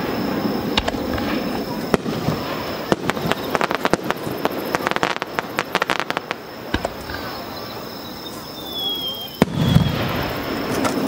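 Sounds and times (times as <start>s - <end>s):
firework pops and crackles: 0.0s - 7.5s, 8.3s - 11.0s
loud firework bang: 9.3s - 11.0s.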